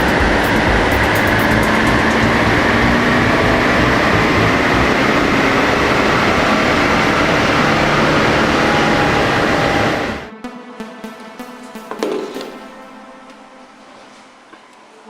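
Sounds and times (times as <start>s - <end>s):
diesel engine under full load: 0.0s - 10.3s
dynamometer rollers and tyres: 0.0s - 10.3s.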